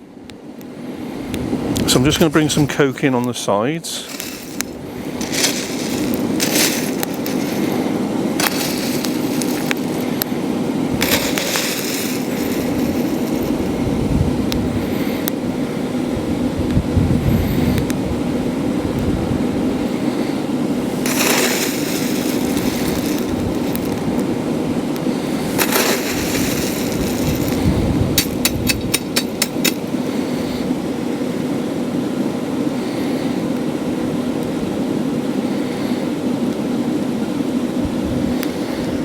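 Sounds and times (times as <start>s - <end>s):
shovel scraping coke: 4.0s - 10.2s, 11.0s - 13.7s, 20.9s - 24.0s, 25.2s - 29.9s
air blower running: 4.0s - 31.4s
wind buffeting microphone: 4.2s - 30.9s.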